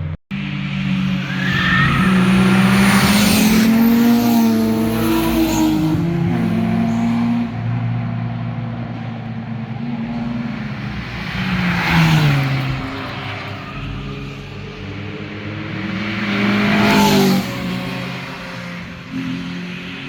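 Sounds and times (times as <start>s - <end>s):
sports cars passing: 0.4s - 20.0s.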